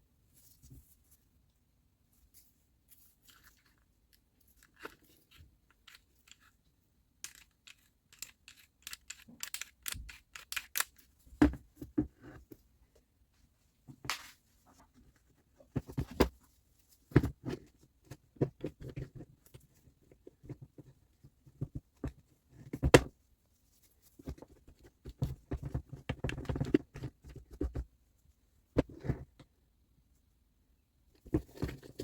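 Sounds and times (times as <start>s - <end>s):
tools clicking and knocking: 7.2s - 11.0s.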